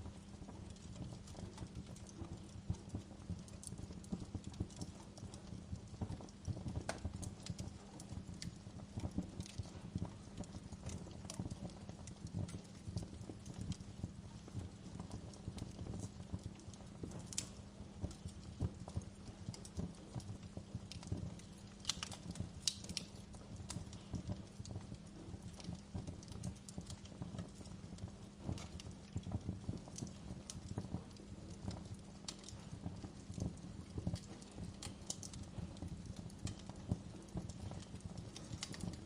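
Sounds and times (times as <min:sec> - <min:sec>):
sharp fire snaps: 0:00.0 - 0:39.0
wood fire crackling: 0:00.0 - 0:39.0.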